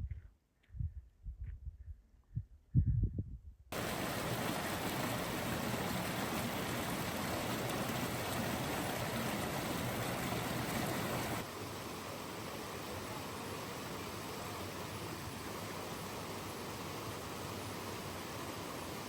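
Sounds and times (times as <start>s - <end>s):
rushing water: 3.8s - 19.0s.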